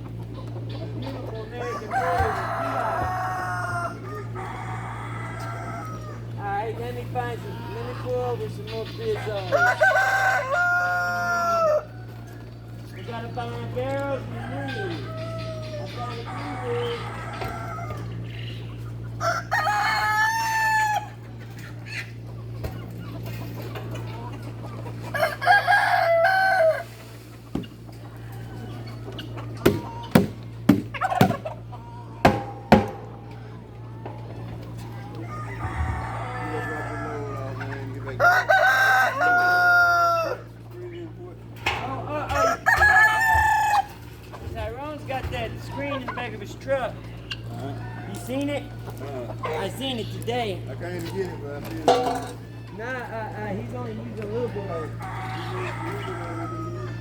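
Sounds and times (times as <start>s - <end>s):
low steady hum: 0.0s - 55.0s
rooster crowing: 1.4s - 6.4s, 9.1s - 12.8s, 14.2s - 18.3s, 19.1s - 21.2s, 25.1s - 27.0s, 28.1s - 40.6s, 41.7s - 44.2s, 47.5s - 49.7s, 54.3s - 57.0s.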